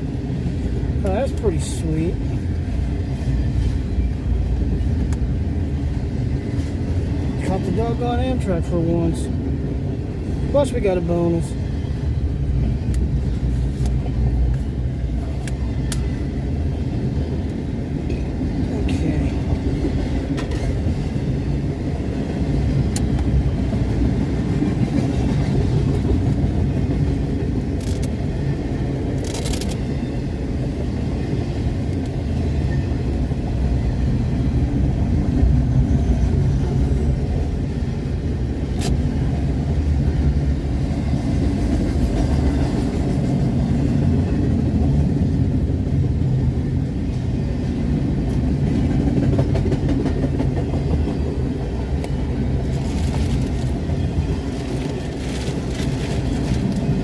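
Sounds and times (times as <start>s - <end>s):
freight train rumbling: 0.0s - 57.0s
sharp clicks of wheels: 27.7s - 28.2s, 29.1s - 29.9s.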